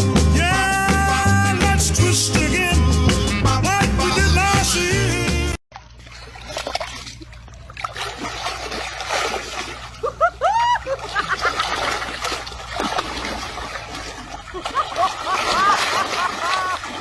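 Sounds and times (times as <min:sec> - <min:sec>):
water splashing and sloshing: 0:05.7 - 0:17.0.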